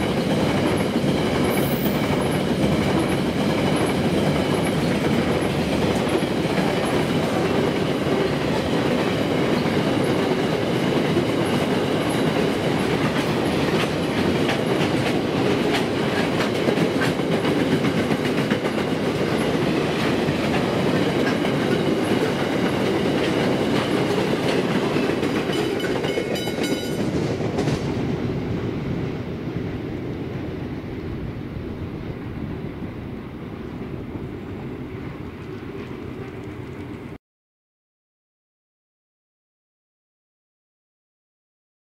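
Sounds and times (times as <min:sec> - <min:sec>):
freight train wagons rolling: 0:00.0 - 0:27.9.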